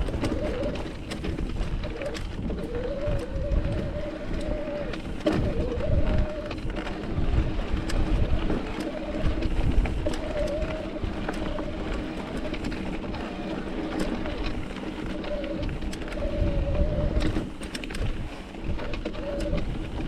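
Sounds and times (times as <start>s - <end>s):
bike clicks and rattles: 0.0s - 20.0s
wind on microphone: 0.0s - 20.0s.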